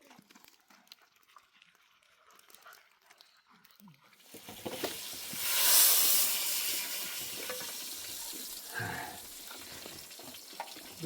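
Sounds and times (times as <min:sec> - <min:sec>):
hot cooking pot hissing: 0:04.3 - 0:11.0.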